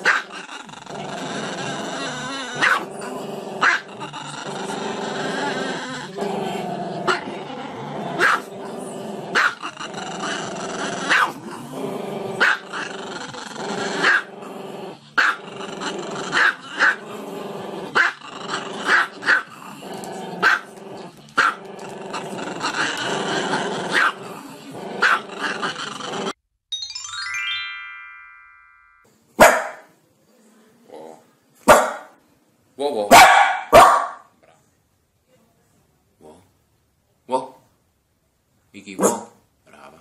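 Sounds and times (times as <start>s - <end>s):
small dog growling: 0.0s - 26.4s
small dog barking: 2.6s - 2.9s, 8.2s - 8.5s, 9.3s - 9.6s, 11.1s - 11.4s, 23.9s - 24.2s, 29.4s - 29.9s, 31.7s - 32.1s, 33.1s - 34.3s, 39.0s - 39.4s.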